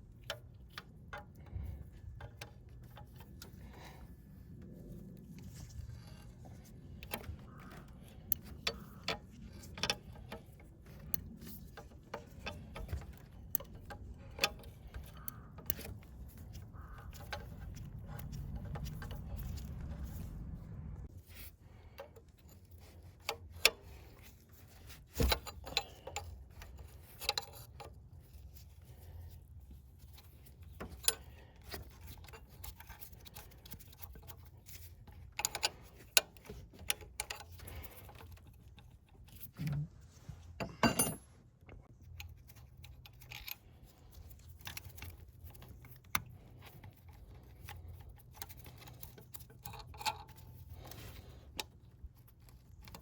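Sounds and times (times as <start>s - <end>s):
hand tools clinking on metal: 40.6s - 41.2s.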